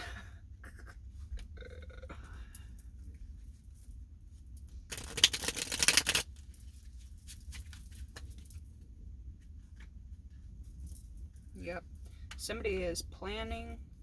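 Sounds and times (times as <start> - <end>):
cards being shuffled: 4.9 - 6.4.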